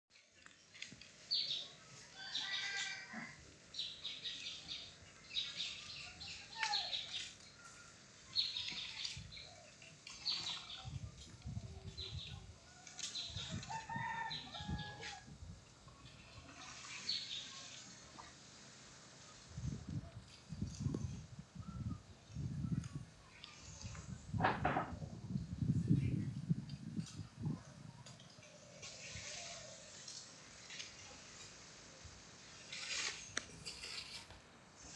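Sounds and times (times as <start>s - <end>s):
leaves rustling in breeze: 0.1s - 34.9s
birdsong and bird calls: 0.4s - 3.0s, 3.7s - 15.0s, 15.9s - 17.8s.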